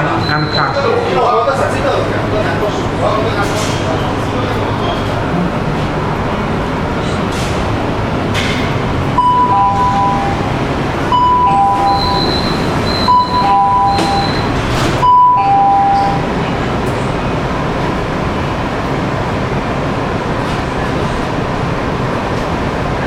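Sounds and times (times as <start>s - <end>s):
train running noise: 0.0s - 23.0s
two-note door warning chime: 9.2s - 10.5s, 11.2s - 16.3s.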